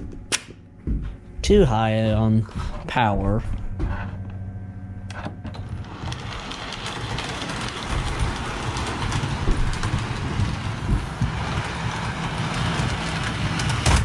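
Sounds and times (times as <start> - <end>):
model train wheels clattering on rail: 5.6 - 14.0.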